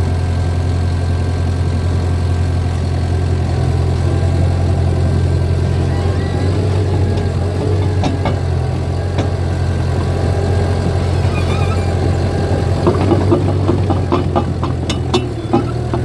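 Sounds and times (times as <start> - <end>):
bulldozer diesel engine running: 0.0 - 16.0
steel tracks clicking and clanking: 3.6 - 16.0.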